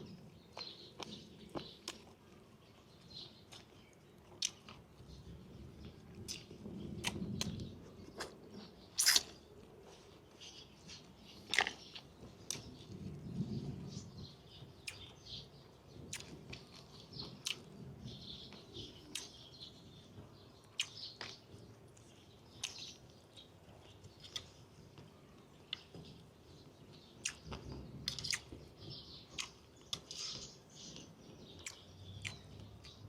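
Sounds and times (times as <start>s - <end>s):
person chewing: 3.3s - 4.8s, 5.8s - 12.7s, 16.1s - 17.7s, 23.7s - 24.6s, 27.2s - 28.5s, 29.3s - 33.0s
wet lip-smacks and mouth clicks: 9.0s - 9.4s.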